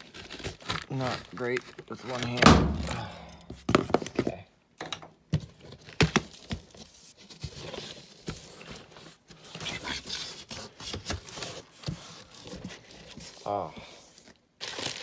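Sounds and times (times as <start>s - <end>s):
cardboard and packing rustling: 0.0s - 4.4s, 5.4s - 15.0s
sharp knocks: 2.4s - 3.2s.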